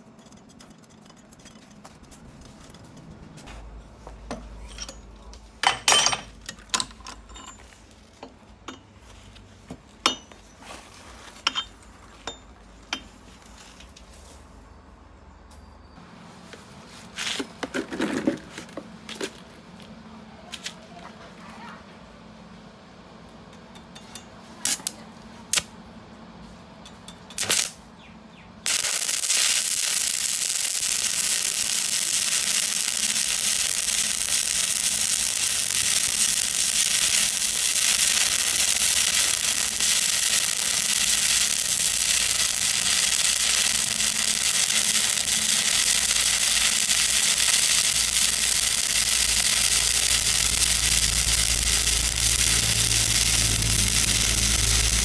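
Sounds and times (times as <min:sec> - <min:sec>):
electric welding arc crackling: 0:27.4 - 0:27.8, 0:28.7 - 0:55.0.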